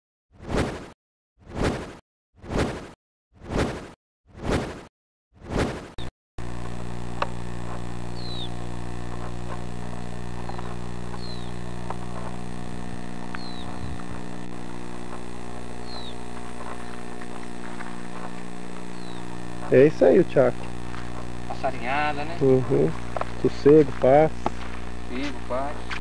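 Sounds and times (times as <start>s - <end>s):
low electrical hum: 6.4s - 26.0s
bird chirping: 8.1s - 23.6s.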